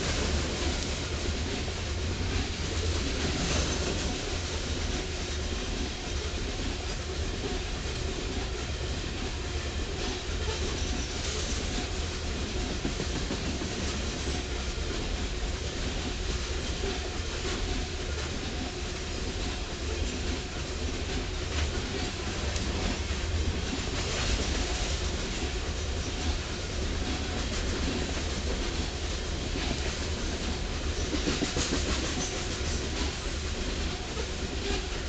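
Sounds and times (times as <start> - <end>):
freight train wheels on rails: 0.0 - 35.0.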